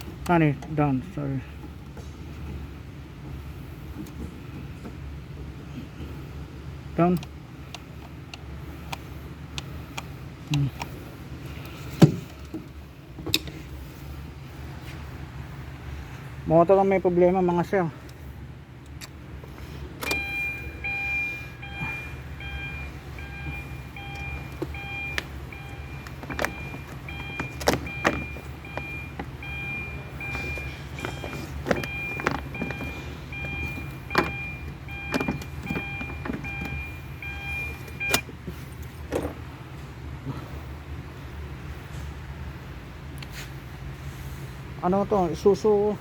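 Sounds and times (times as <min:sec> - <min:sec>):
low steady hum: 0:00.0 - 0:46.0
car warning chime beeping: 0:20.0 - 0:38.3.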